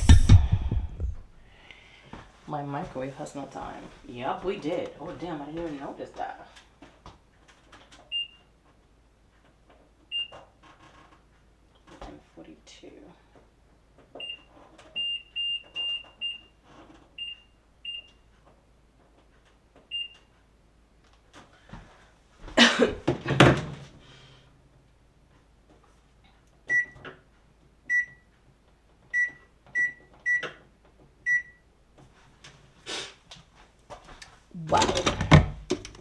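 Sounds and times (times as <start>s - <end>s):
microwave keypad beeps: 8.1s - 8.4s, 10.1s - 10.4s, 14.2s - 16.5s, 17.2s - 18.2s, 19.9s - 20.3s, 26.7s - 27.0s, 27.9s - 28.3s, 29.1s - 30.6s, 31.2s - 31.7s.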